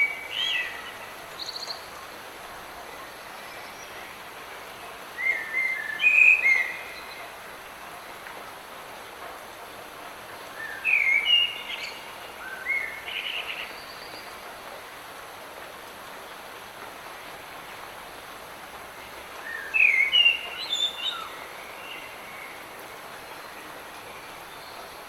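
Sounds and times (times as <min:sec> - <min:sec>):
light rain hissing: 0:00.0 - 0:25.0.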